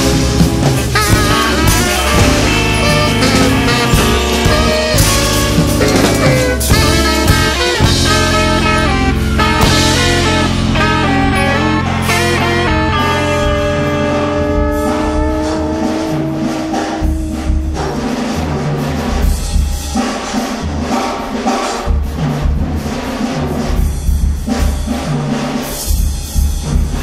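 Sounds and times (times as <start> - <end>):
held guitar chord: 0.0 - 19.1
drums and bass beat: 0.0 - 27.0.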